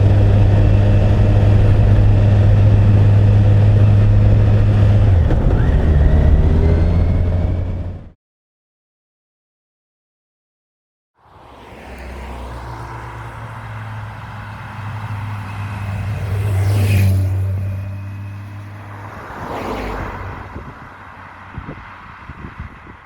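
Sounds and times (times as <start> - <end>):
vehicle engine running: 0.0 - 8.2.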